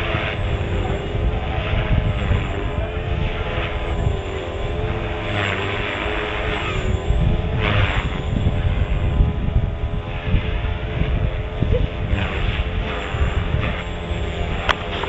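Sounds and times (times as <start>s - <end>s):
rc helicopter engine whine: 0.0s - 15.0s
wind buffeting microphone: 0.0s - 15.0s.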